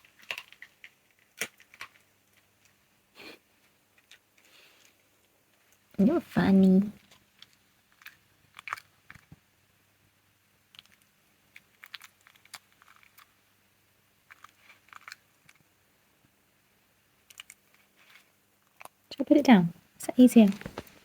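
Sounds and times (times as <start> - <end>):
fox crunching bones: 0.0 - 2.8, 7.0 - 9.4, 10.7 - 13.4, 14.2 - 15.7.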